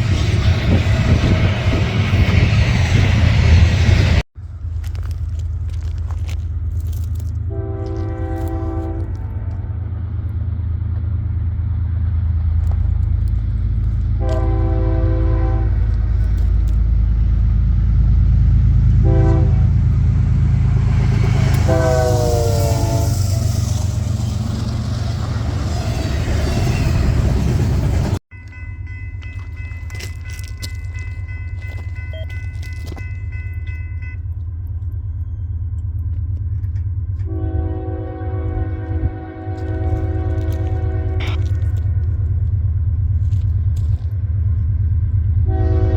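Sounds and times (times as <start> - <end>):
train rumbling: 0.0 - 45.9
locomotive air horn blasts: 7.4 - 9.8, 14.1 - 16.1, 18.9 - 24.4, 37.2 - 41.8, 45.4 - 45.9
steady high tone: 28.3 - 34.4.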